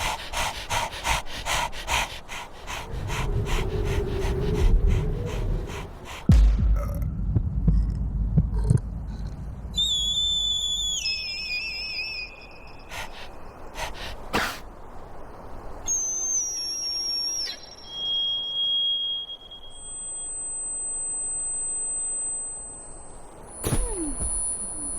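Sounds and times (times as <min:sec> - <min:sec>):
warbling whistle-like tones: 0:09.7 - 0:12.5, 0:15.9 - 0:24.9.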